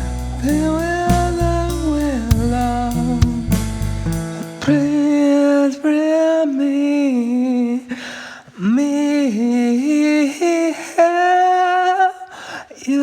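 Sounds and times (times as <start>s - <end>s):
person singing wordless melody: 0.0s - 13.0s
singer breathing in: 7.9s - 8.6s.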